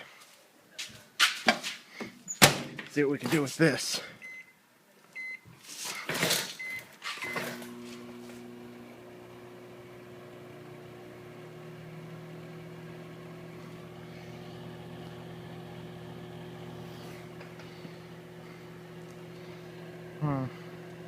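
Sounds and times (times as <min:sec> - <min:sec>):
microwave oven humming: 0:07.2 - 0:21.0.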